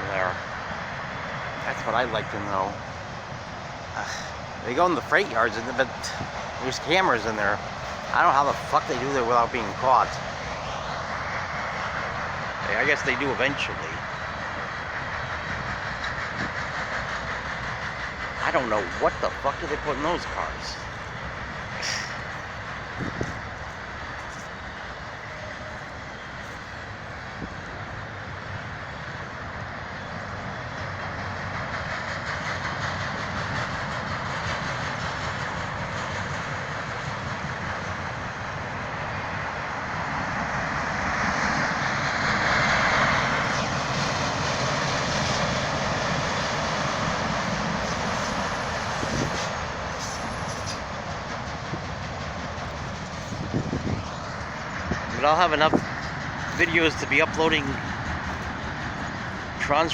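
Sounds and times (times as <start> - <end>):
freight train cars rolling past: 0.0 - 59.9.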